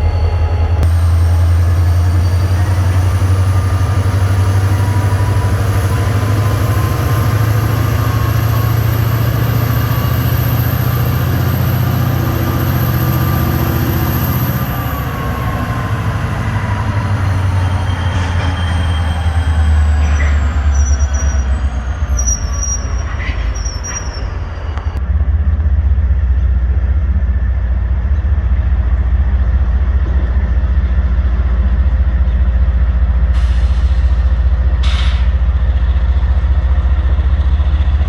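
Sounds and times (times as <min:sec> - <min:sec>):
high-pitched whine: 0:00.0 - 0:25.0
diesel locomotive drone: 0:00.0 - 0:38.0.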